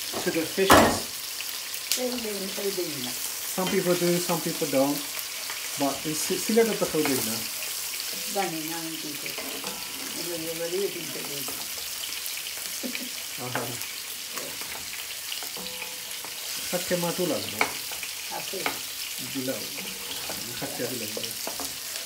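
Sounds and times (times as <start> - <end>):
onions sizzling in oil: 0.0 - 22.0
wooden spoon scraping pot: 19.6 - 21.9.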